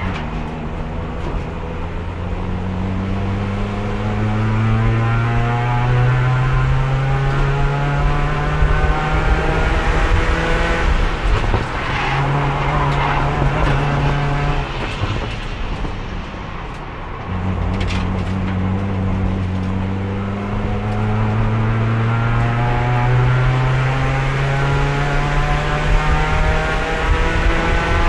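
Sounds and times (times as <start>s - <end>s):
race car engine: 0.0s - 28.0s.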